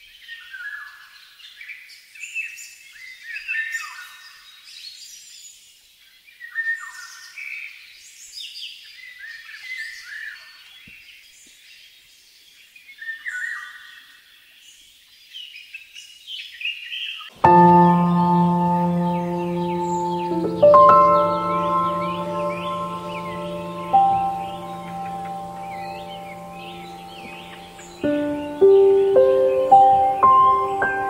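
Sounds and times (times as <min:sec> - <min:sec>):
small birds chirping: 0:14.7 - 0:31.0.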